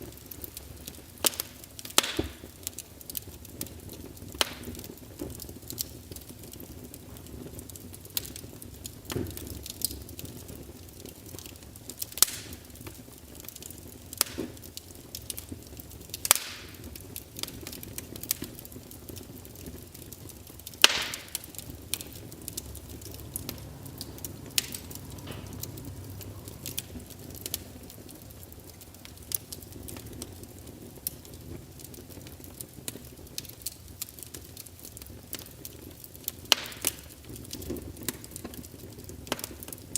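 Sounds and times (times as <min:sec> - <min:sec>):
low steady hiss: 0:00.0 - 0:39.9
wood fire crackling: 0:00.0 - 0:39.9.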